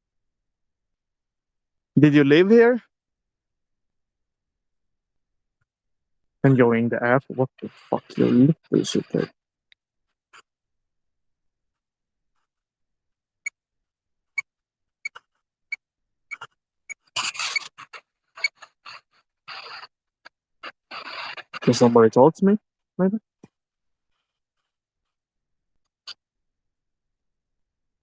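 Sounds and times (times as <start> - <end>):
burst of static: 20.9 - 22.1.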